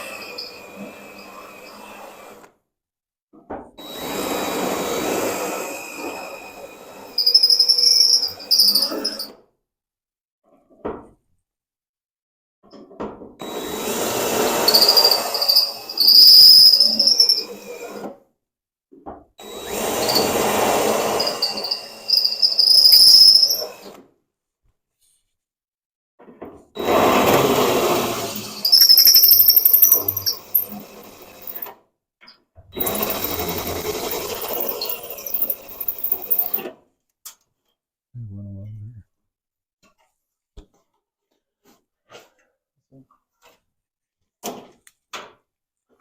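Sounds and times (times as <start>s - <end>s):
high piercing drill squeal: 0.0s - 1.8s, 6.9s - 9.3s, 14.5s - 17.8s, 19.5s - 23.9s, 28.0s - 31.7s, 32.8s - 36.5s
power drill boring into sheet steel: 0.0s - 2.3s, 3.9s - 9.3s, 13.4s - 18.0s, 19.4s - 23.9s, 26.8s - 31.7s, 32.8s - 36.6s.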